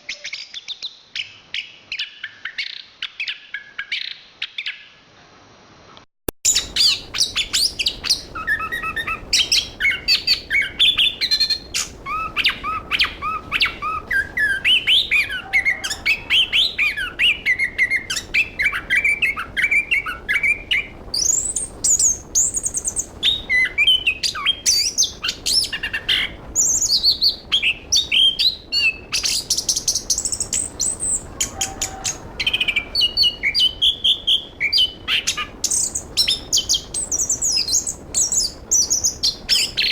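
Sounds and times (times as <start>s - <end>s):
thrush singing: 6.5s - 26.8s.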